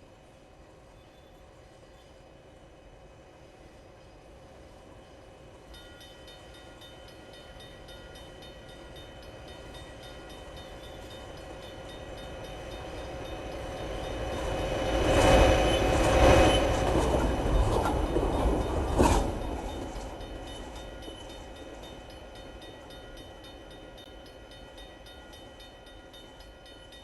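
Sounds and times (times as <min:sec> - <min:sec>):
freight train rumbling: 0:00.0 - 0:27.0
crossing bell ringing: 0:05.6 - 0:27.0.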